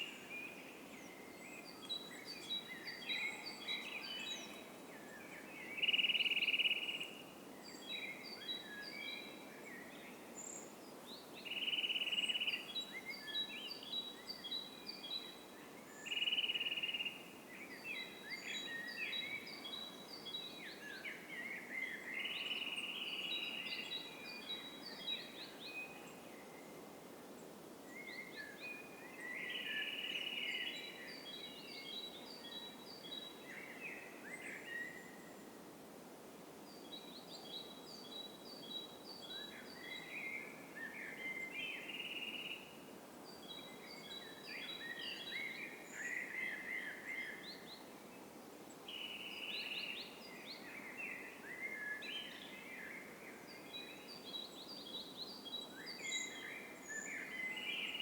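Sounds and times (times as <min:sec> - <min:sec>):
songbirds chirping and trilling: 0:00.0 - 0:35.6, 0:36.6 - 0:58.0
low background hiss: 0:00.0 - 0:58.0.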